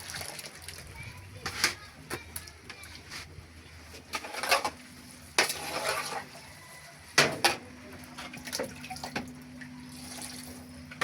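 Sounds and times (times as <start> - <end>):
metal spoon scraping a pot: 4.1 - 6.4.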